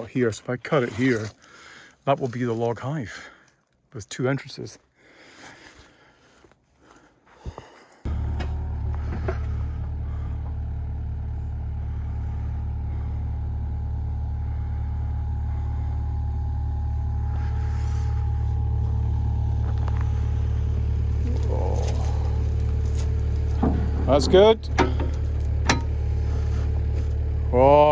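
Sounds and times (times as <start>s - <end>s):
vehicle engine low rumble: 8.0s - 27.9s.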